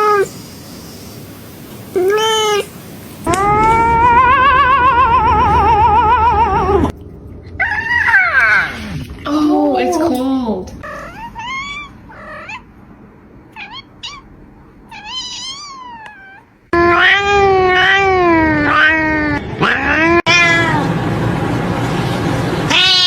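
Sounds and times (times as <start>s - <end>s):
cat meowing: 2.0s - 2.7s, 10.8s - 12.7s, 13.5s - 14.3s, 14.9s - 20.8s, 22.7s - 23.0s.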